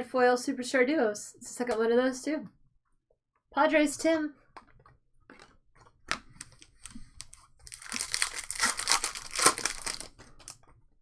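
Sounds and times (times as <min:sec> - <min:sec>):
foil wrapper tearing and crinkling: 0:07.1 - 0:10.2.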